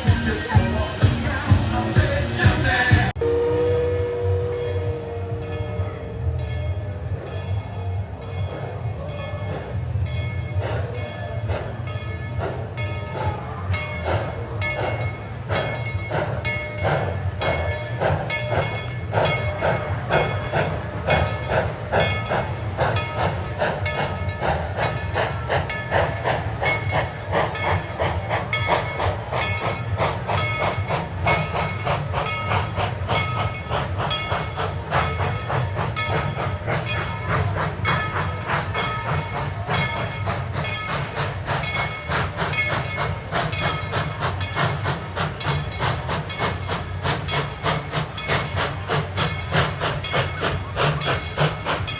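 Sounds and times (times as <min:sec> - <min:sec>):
steam hissing: 0:00.0 - 0:06.7, 0:25.9 - 0:51.9.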